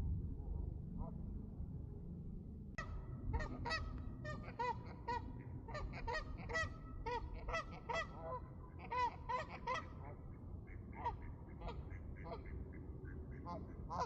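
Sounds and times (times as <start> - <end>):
steady low rumble: 0.0 - 7.6.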